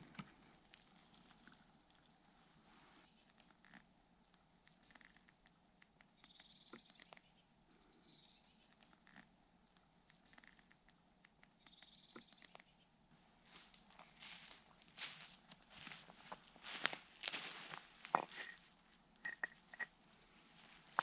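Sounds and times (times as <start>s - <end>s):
footsteps crunching dry leaves: 13.5s - 18.6s.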